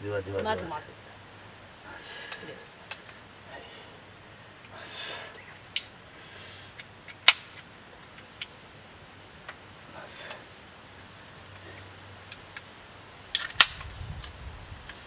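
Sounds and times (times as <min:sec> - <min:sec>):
short hiss: 0:04.7 - 0:07.5, 0:13.3 - 0:14.4
sharp click: 0:13.4 - 0:15.0.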